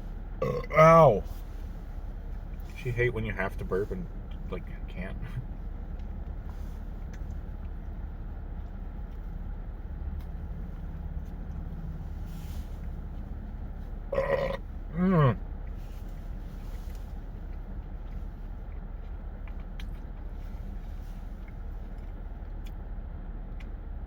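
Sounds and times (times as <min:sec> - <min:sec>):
steady low rumble: 0:00.0 - 0:24.0
man burping: 0:00.4 - 0:01.0, 0:14.1 - 0:15.4.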